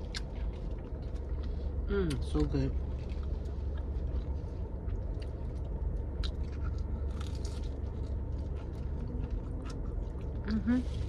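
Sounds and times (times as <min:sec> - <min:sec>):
person chewing crunchy food: 0:00.0 - 0:02.2, 0:02.8 - 0:11.0
steady low rumble: 0:00.0 - 0:11.0.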